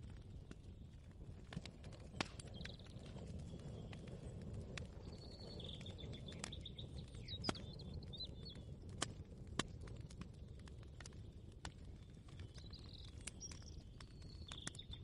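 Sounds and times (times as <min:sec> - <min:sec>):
birds chirping: 0:04.9 - 0:08.7.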